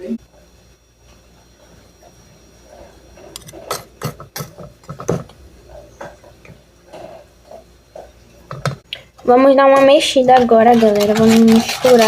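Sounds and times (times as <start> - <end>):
kitchen utensils clicking and knocking: 3.3 - 6.2, 9.6 - 12.0.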